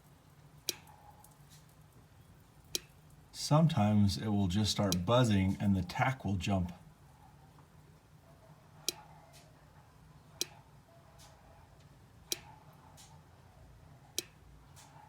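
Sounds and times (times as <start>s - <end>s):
low steady hum: 0.0s - 15.0s
sharp clicks: 12.3s - 13.1s.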